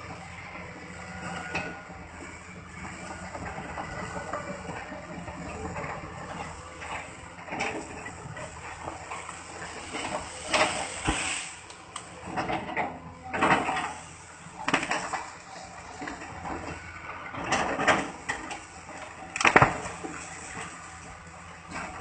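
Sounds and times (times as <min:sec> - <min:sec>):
excavator machine noise: 0:00.0 - 0:22.0
wood crunching and cracking: 0:19.3 - 0:20.1.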